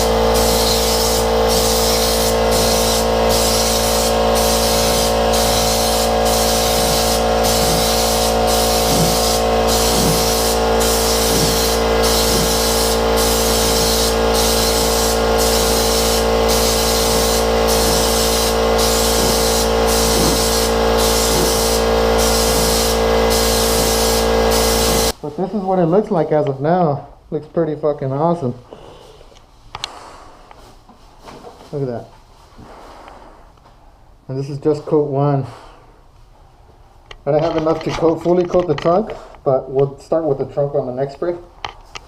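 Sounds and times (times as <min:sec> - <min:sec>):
spray gun hissing: 0:00.0 - 0:25.2.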